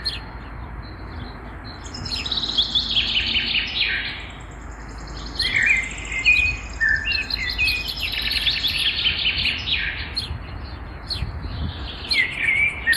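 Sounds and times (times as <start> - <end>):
songbirds singing: 0.0 - 12.9.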